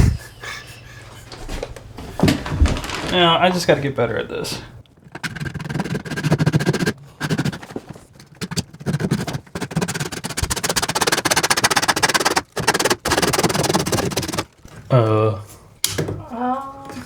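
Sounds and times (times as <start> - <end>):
power saw cutting pipe: 5.0 - 14.6.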